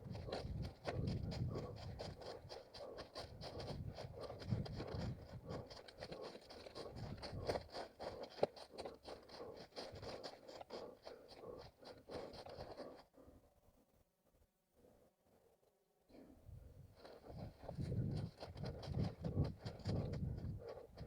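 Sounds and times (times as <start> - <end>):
running footsteps on forest ground: 0.0 - 13.2, 17.0 - 21.0
rustling ground cover underfoot: 0.0 - 13.2, 16.9 - 21.0.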